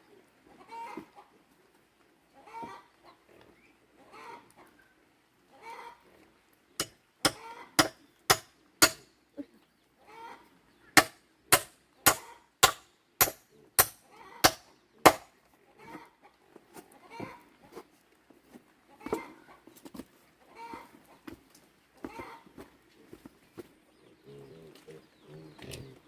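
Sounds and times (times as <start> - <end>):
hand tool striking hard: 6.8 - 9.1, 11.0 - 15.3
poultry calling: 15.7 - 17.5, 20.4 - 21.3, 22.0 - 26.0.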